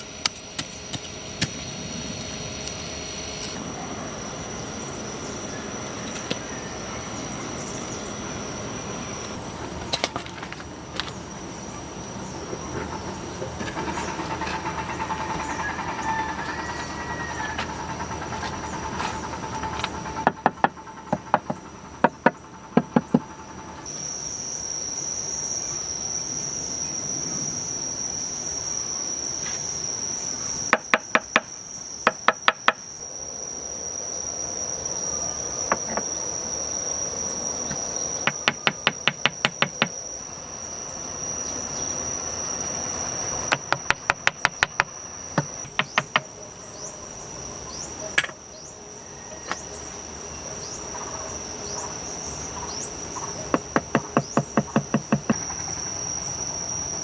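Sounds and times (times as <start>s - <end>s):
high-pitched insect trill: 0.0s - 57.0s
rapid sharp knocks: 19.6s - 23.4s, 38.2s - 39.9s, 43.5s - 46.3s, 53.5s - 55.6s.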